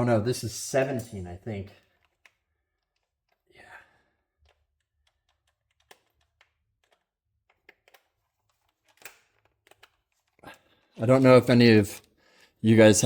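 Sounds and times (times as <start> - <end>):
hand tools clicking and tapping: 1.7 - 10.8.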